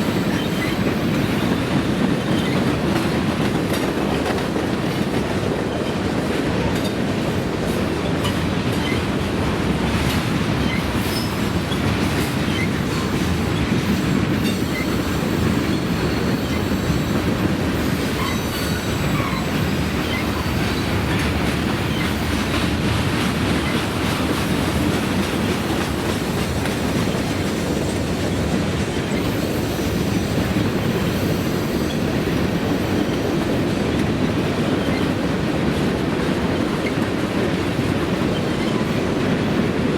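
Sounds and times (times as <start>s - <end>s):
clicks of train wheels: 0.0s - 39.9s
train wheels rumbling on rail: 0.0s - 39.9s
faint high wheel squeal: 0.1s - 0.8s, 14.4s - 17.2s, 17.9s - 20.9s.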